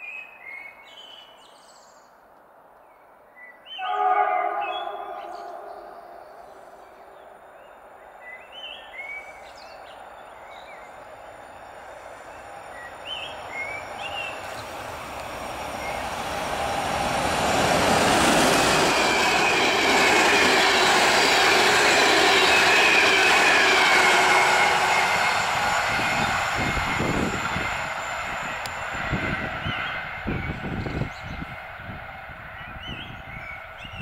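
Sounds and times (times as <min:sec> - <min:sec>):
train wheels rumbling on rail: 0:08.8 - 0:34.0.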